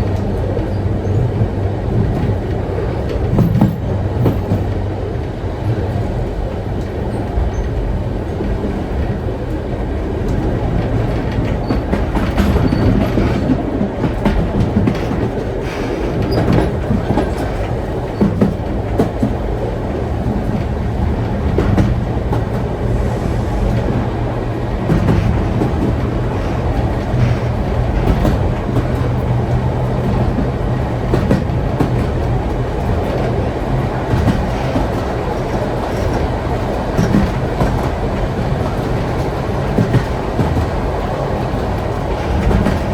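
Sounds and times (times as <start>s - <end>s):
wheels clicking and rattling: 0.0s - 22.7s, 23.7s - 42.9s
train carriages rumbling on rails: 0.0s - 42.9s.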